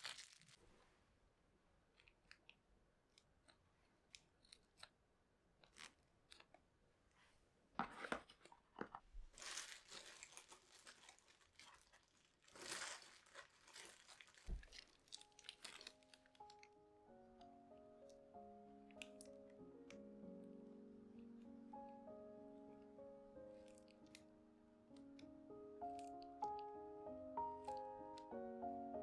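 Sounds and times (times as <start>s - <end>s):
paper crinkling and rustling: 0.0s - 0.8s, 7.8s - 16.7s.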